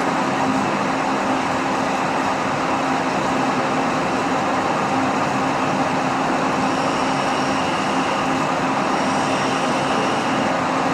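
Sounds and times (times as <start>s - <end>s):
lathe running with hum: 0.1s - 10.9s
faint high whine: 6.5s - 10.6s.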